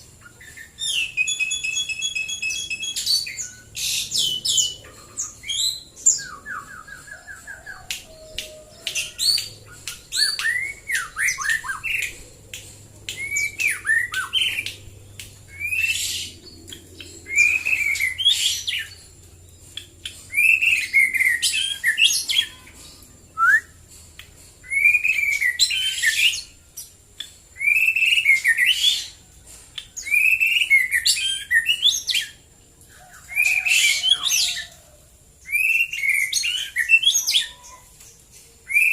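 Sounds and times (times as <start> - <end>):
bird singing whistled phrases: 0.5 - 4.8, 5.4 - 12.1, 13.2 - 14.8, 15.5 - 16.4, 17.3 - 19.0, 20.3 - 22.7, 23.4 - 23.8, 24.6 - 26.5, 27.6 - 29.1, 30.0 - 32.4, 35.5 - 37.8, 38.7 - 38.9.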